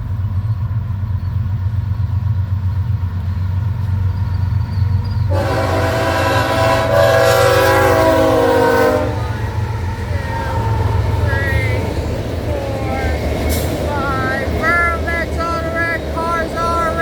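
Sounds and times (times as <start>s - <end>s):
freight train rumbling: 0.0s - 17.0s
locomotive air horn blast: 5.3s - 17.0s.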